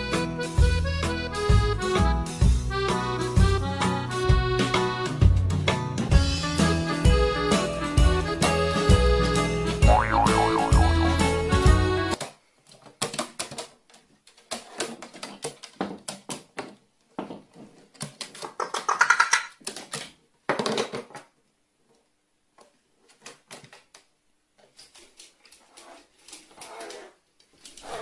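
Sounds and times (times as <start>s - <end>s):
music: 0.0s - 12.2s
brief pitched sound: 9.8s - 11.4s.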